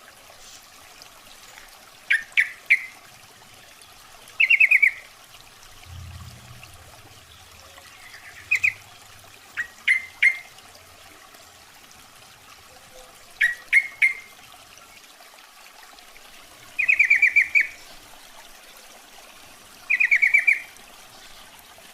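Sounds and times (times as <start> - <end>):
bird calling: 7.6 - 8.9, 9.6 - 10.5.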